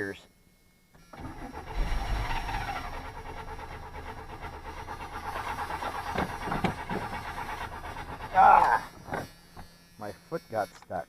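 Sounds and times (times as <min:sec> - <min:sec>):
starter cranking engine: 0:01.0 - 0:09.3.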